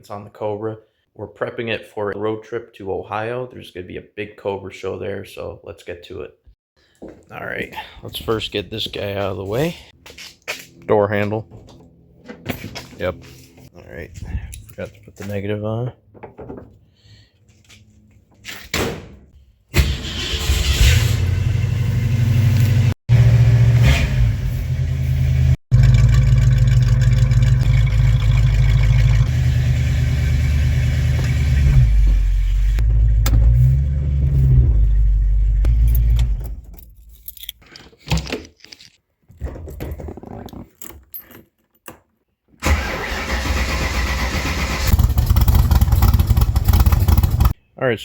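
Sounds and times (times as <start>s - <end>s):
car engine rumbling: 20.0s - 37.4s, 42.7s - 47.6s.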